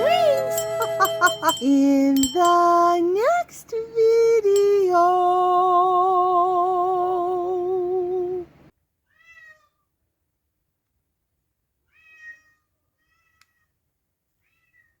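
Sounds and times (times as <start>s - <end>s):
held musical note with vibrato: 0.0s - 3.0s.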